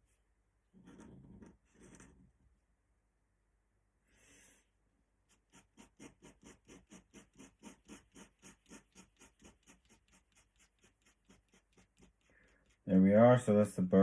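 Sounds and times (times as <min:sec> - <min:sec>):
pen scratching on paper: 0:05.3 - 0:13.1.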